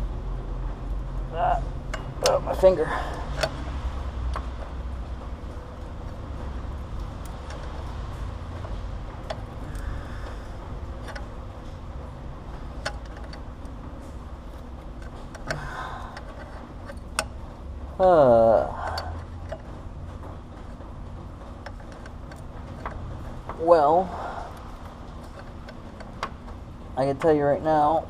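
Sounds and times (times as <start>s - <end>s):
steady low hum: 0.0s - 28.0s
small metallic clicks and taps: 1.9s - 4.8s, 7.0s - 11.8s, 12.5s - 17.4s, 18.8s - 20.8s, 21.6s - 23.6s, 24.9s - 27.4s.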